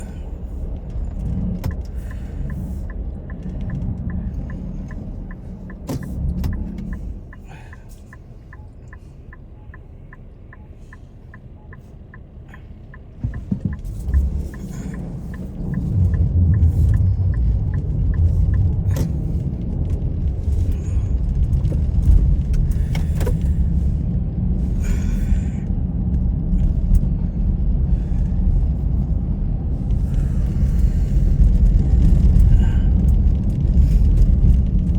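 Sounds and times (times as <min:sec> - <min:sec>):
car engine and road rumble: 0:00.0 - 0:34.9
steady ticking: 0:01.7 - 0:19.4.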